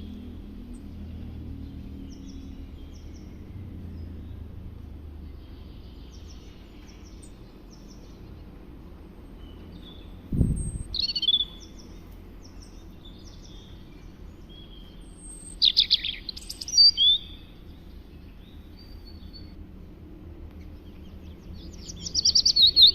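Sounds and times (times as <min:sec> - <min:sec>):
birds chirping: 0:00.0 - 0:19.6, 0:20.5 - 0:22.9
low thump: 0:10.3 - 0:10.8.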